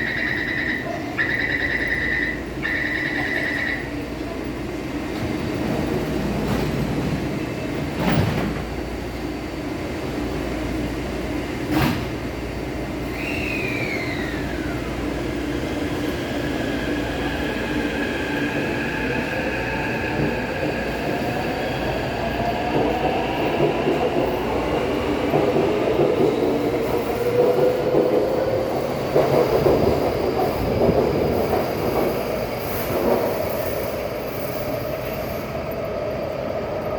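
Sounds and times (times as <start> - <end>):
short falling whistle: 13.1 - 14.8
wheels rumbling on rails: 17.6 - 35.1.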